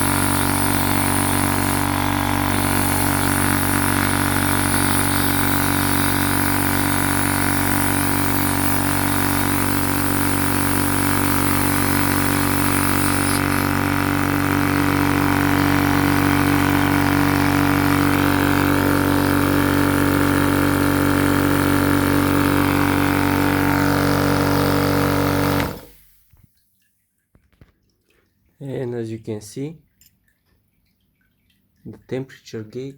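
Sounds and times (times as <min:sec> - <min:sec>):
air compressor running: 0:00.0 - 0:26.2.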